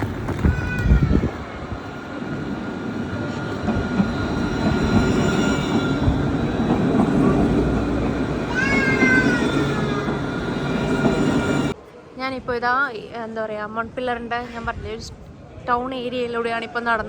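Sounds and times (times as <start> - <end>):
tram rumbling by: 0.0 - 11.8.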